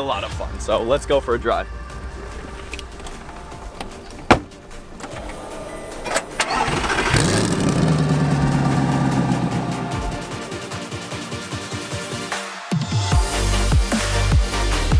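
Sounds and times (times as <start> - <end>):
car engine starting and idling: 0.8 - 11.2
sharp thump: 4.2 - 4.6.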